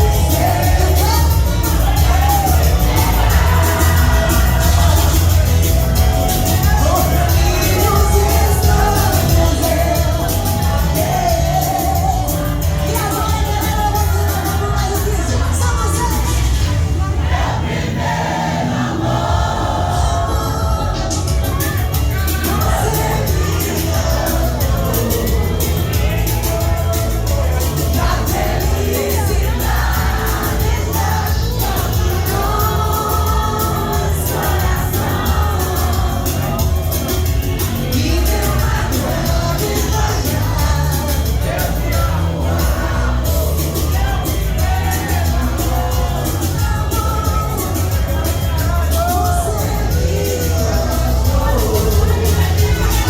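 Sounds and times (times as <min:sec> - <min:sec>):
person singing: 0:00.0 - 0:16.7, 0:19.2 - 0:53.0
electronic beat with deep bass: 0:00.0 - 0:16.8, 0:19.2 - 0:53.0.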